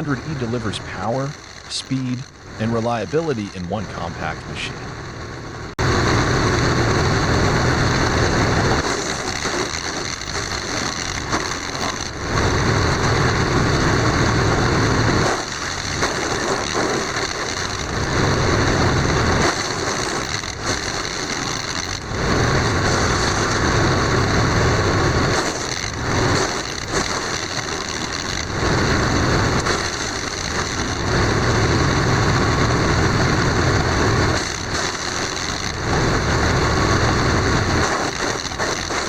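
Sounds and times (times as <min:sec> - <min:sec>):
high machine whine: 0:00.0 - 0:39.0
wood chipper chipping branches: 0:08.8 - 0:39.0.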